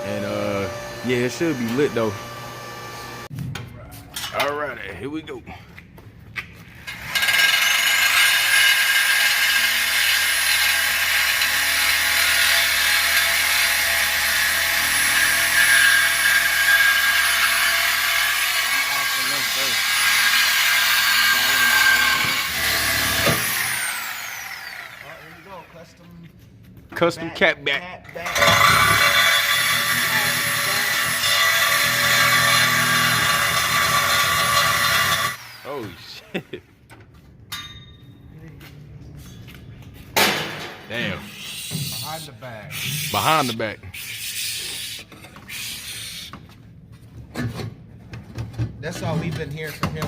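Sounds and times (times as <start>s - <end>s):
high-speed power tool whine: 0.0s - 3.3s, 6.9s - 25.6s, 28.3s - 35.9s.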